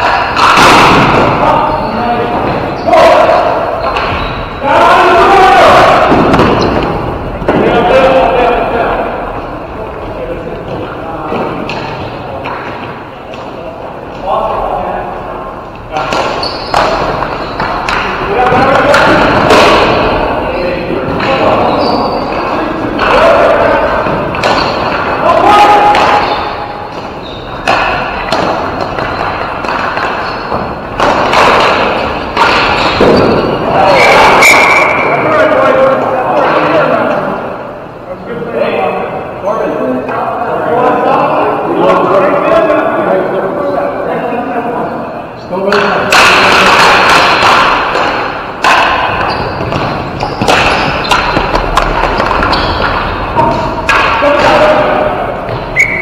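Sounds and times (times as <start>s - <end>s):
sticks and ball hitting floor: 0.0s - 9.0s, 10.7s - 14.6s, 15.8s - 35.1s, 45.6s - 56.0s
noisy rink din: 0.0s - 56.0s.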